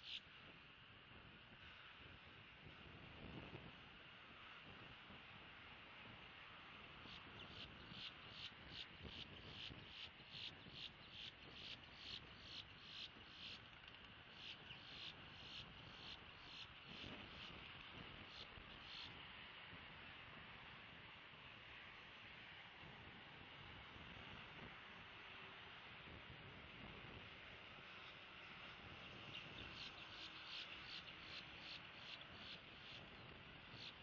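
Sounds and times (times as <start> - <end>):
wind noise hiss: 0.0 - 34.0
insect chirping: 29.8 - 33.0.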